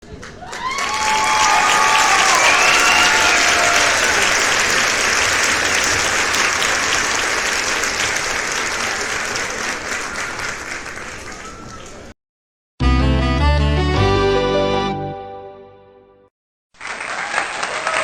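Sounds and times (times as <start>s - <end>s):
crowd applause: 0.0s - 12.2s, 16.8s - 18.0s.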